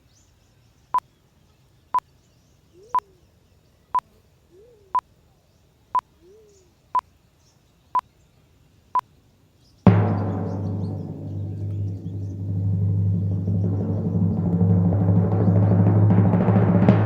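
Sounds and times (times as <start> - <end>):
drum boom: 9.9 - 17.0.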